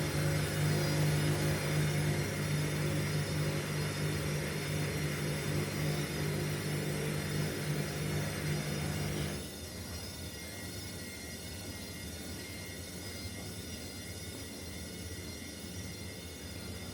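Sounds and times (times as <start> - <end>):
washing machine running: 0.0 - 12.6.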